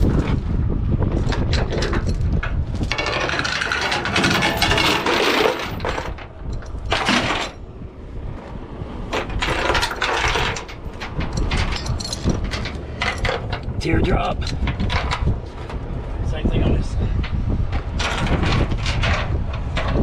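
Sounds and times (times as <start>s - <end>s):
chain links clinking: 3.0s - 7.6s, 9.6s - 13.7s.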